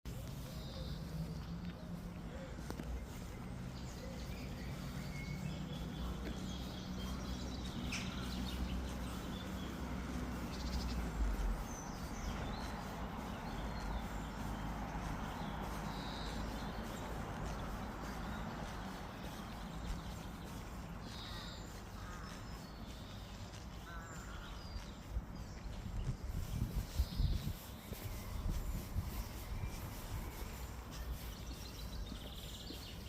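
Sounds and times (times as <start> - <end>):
small birds chirping: 0.1 - 33.0.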